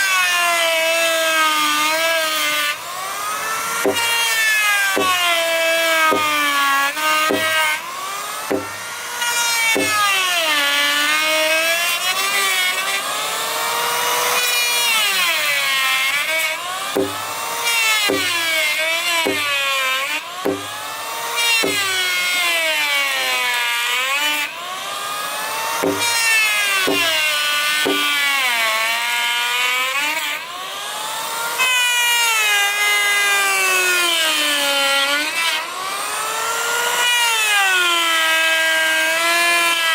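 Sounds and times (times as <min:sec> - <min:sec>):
power tool cutting wood: 0:00.0 - 0:39.9
sharp knocks: 0:03.8 - 0:04.2, 0:05.0 - 0:05.3, 0:06.1 - 0:06.5, 0:07.3 - 0:07.7, 0:08.5 - 0:09.0, 0:09.8 - 0:10.1, 0:17.0 - 0:18.5, 0:19.3 - 0:19.6, 0:20.5 - 0:20.9, 0:21.6 - 0:22.0, 0:25.8 - 0:28.2.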